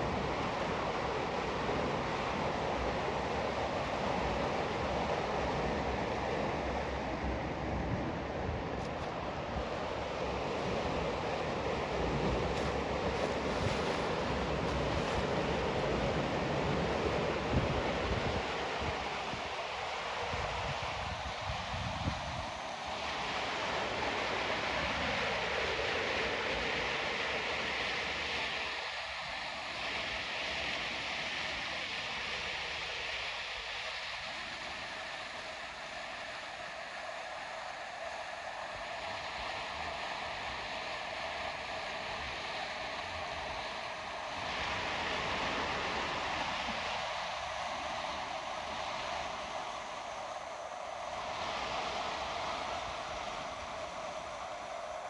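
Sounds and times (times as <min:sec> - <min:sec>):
river water rushing over rocks: 0:09.0 - 0:16.6.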